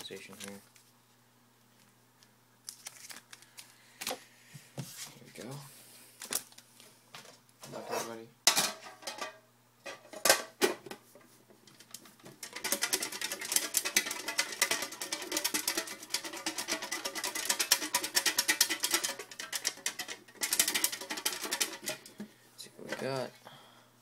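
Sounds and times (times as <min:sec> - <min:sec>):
raffle items rattling when shaken: 0:12.4 - 0:22.2.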